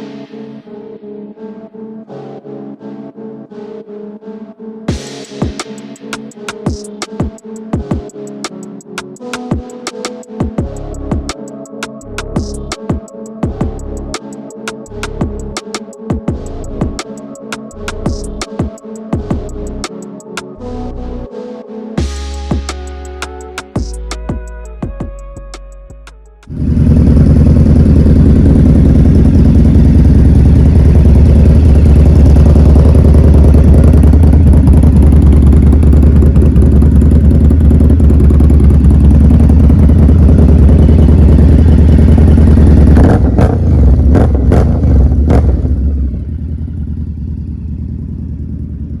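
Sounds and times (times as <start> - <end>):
motorcycle engine running: 10.6 - 11.4, 12.2 - 12.8, 13.4 - 14.2, 14.9 - 15.6, 16.3 - 17.0, 17.8 - 18.6, 19.2 - 19.8, 22.0 - 25.0, 26.5 - 49.0
engine revving blips: 26.4 - 48.6.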